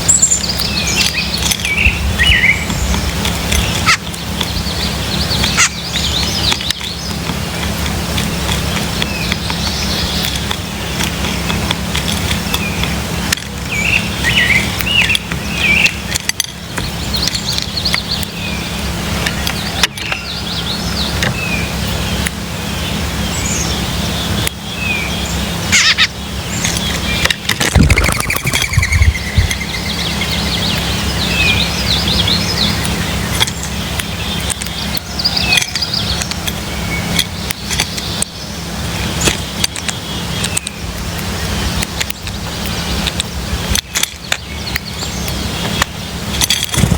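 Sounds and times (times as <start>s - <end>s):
bird trill: 0.0s - 7.8s, 13.7s - 41.5s
birds chirping: 0.0s - 46.9s
low rumble: 27.6s - 31.6s.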